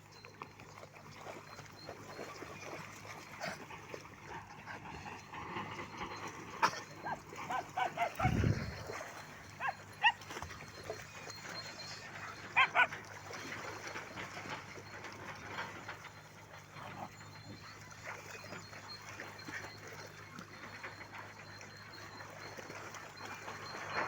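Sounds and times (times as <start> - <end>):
dogs yelping barks: 6.0 - 14.2.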